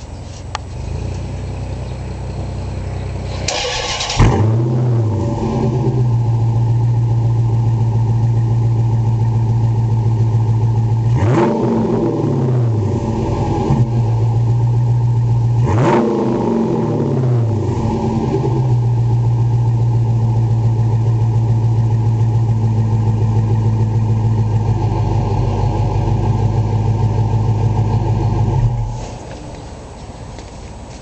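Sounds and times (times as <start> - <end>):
car engine revving and idling: 0.0 - 30.0
car engine cranking: 0.5 - 29.8.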